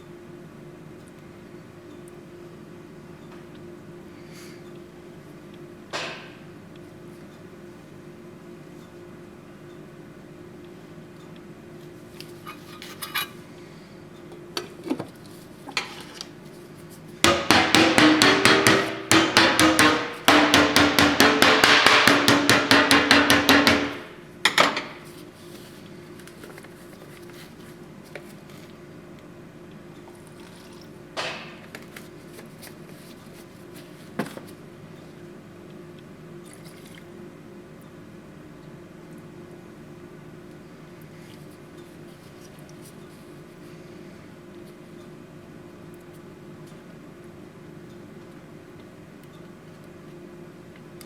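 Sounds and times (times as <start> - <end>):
power tool hammering rapidly: 17.3 - 24.2.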